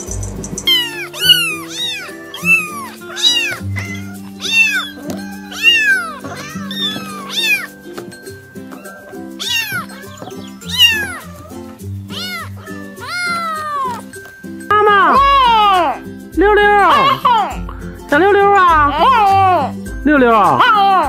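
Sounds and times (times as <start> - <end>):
background music: 0.0 - 21.0
kittens meowing: 0.6 - 7.9, 8.6 - 14.1, 16.8 - 17.7.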